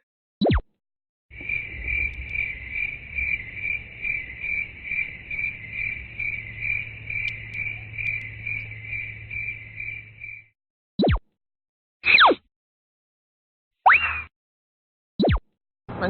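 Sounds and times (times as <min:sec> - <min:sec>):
crickets chirping: 0:01.3 - 0:10.5
low steady hum: 0:01.4 - 0:10.4.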